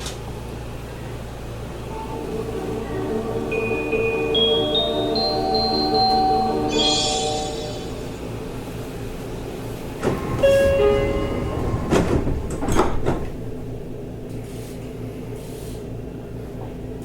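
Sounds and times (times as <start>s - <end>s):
standing train hum: 0.0s - 17.0s
train doors knocking shut: 10.0s - 13.8s.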